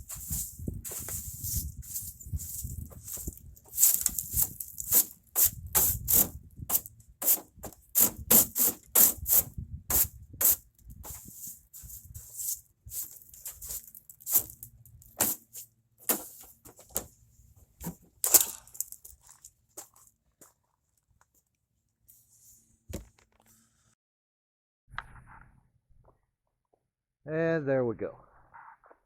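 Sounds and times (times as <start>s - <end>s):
brush scraping truck bed: 0.0s - 17.1s.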